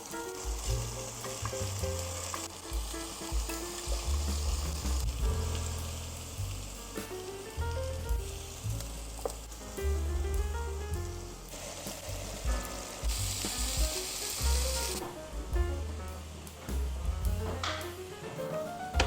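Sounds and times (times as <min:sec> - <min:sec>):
background music: 0:00.0 - 0:19.0
food sizzling in a pan: 0:13.0 - 0:15.0.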